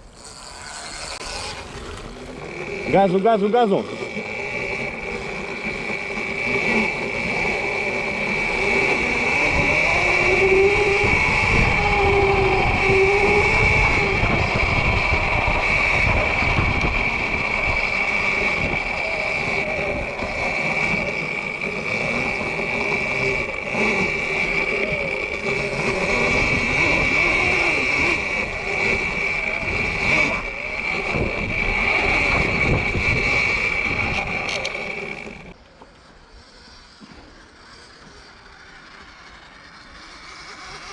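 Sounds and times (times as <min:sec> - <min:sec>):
electric motor whine: 0:00.0 - 0:40.9
wind buffeting microphone: 0:04.1 - 0:35.6.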